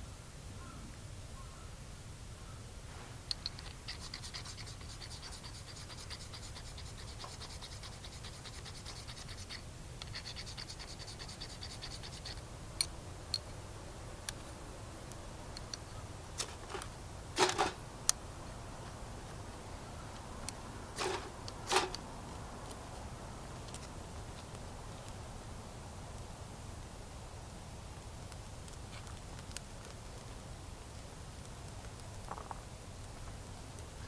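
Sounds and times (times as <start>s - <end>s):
rapid fine scraping: 21.0s - 22.0s.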